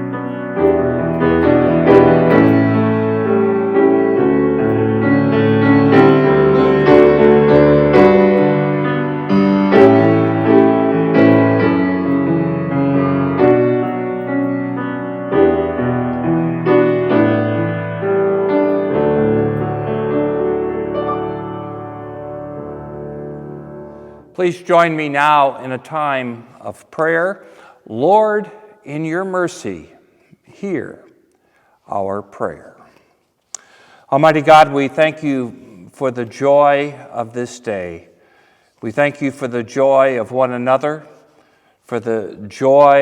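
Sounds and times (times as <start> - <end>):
solo piano music: 0.0 - 24.2.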